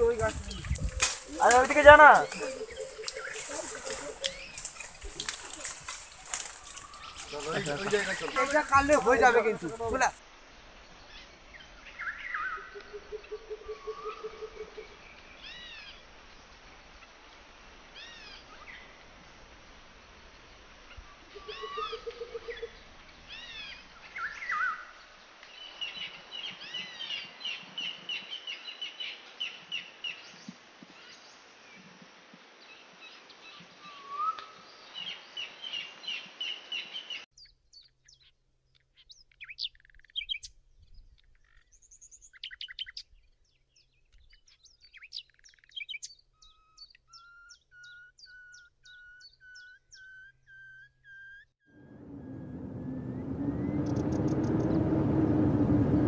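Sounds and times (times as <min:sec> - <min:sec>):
birds chirping and trilling: 0:00.0 - 0:10.2, 0:11.0 - 0:16.0, 0:20.9 - 0:30.4, 0:33.0 - 0:55.1
steady hiss: 0:15.0 - 0:21.5
repeated whistled bird notes: 0:45.0 - 0:54.8.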